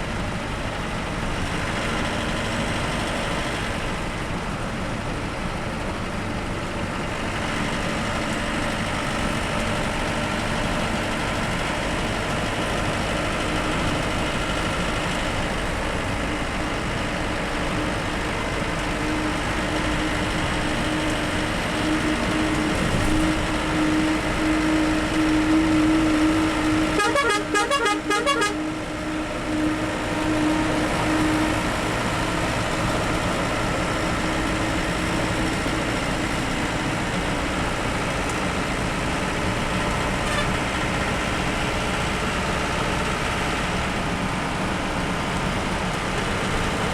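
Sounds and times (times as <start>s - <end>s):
bus engine whine: 0.0s - 46.9s
horn pulsing rapidly: 19.1s - 31.9s.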